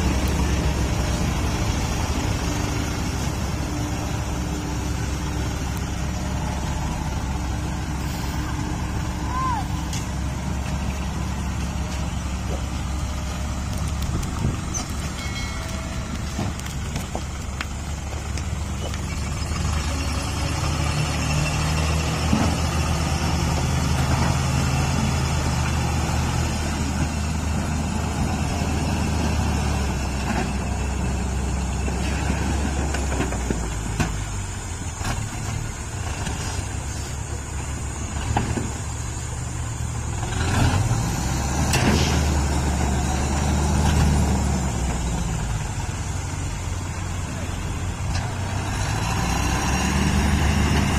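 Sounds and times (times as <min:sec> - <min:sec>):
diesel truck engine revving: 0:00.0 - 0:15.2, 0:16.0 - 0:50.9.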